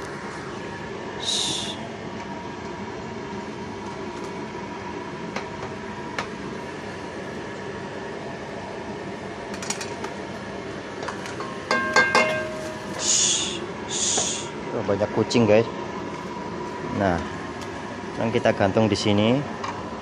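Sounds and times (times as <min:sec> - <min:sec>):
steady background hiss: 0:10.6 - 0:19.7.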